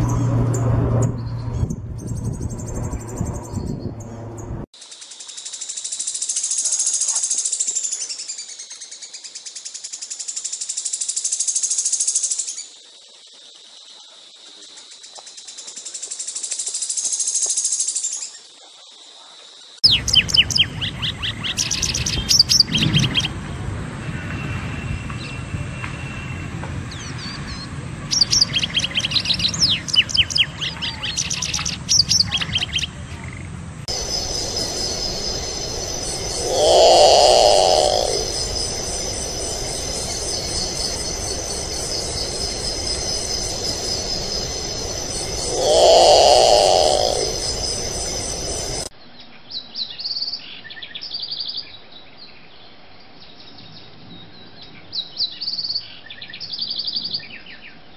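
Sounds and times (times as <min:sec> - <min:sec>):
downward-sweeping bird notes: 0:33.9 - 0:48.9
high rapid bird trill: 0:33.9 - 0:48.9
high ringing birdsong: 0:33.9 - 0:48.9.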